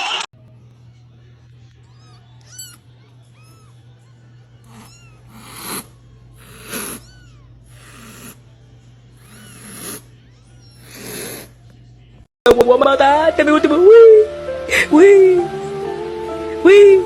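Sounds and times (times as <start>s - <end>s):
cat squeaky calls: 1.9s - 5.7s, 6.5s - 8.3s
cat breathy rasps: 4.6s - 8.4s, 9.2s - 10.1s, 10.7s - 11.6s.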